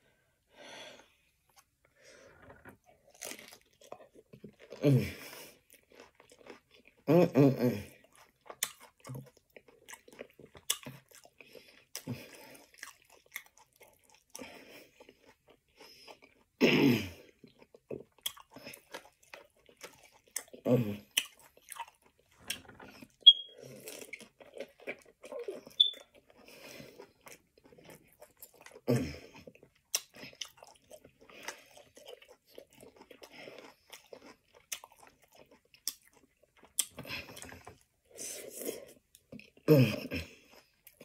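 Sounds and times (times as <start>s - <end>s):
person chewing with wet clicks: 5.6s - 7.0s, 8.0s - 16.5s, 17.3s - 37.9s.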